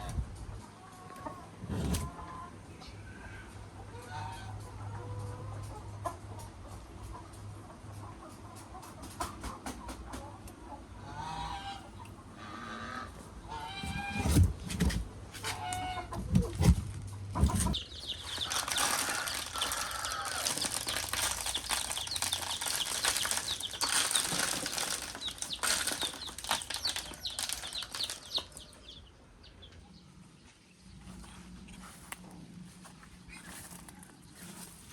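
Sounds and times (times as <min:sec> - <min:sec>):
chickens clucking: 0:00.0 - 0:30.0
chickens flapping wings: 0:17.4 - 0:28.8.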